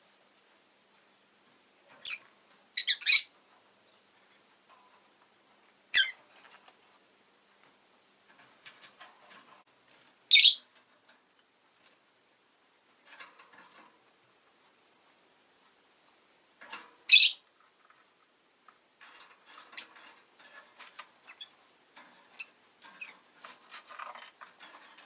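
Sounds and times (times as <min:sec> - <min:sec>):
lovebird shrill chirps: 0:02.8 - 0:03.4, 0:05.9 - 0:06.2, 0:10.3 - 0:10.6, 0:17.1 - 0:17.4.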